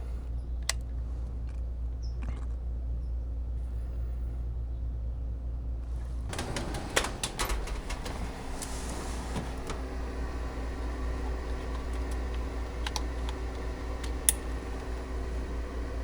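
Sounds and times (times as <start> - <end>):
steady low hum: 0.0 - 16.0
clicks and knocks of handling: 6.3 - 15.0.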